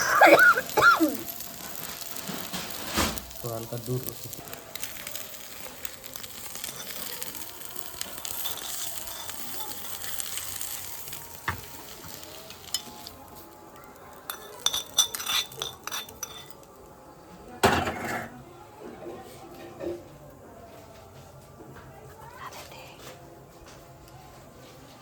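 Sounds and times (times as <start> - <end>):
eggs sizzling in oil: 0.0 - 17.2
spatula scraping a pan: 8.0 - 13.1, 14.3 - 16.6.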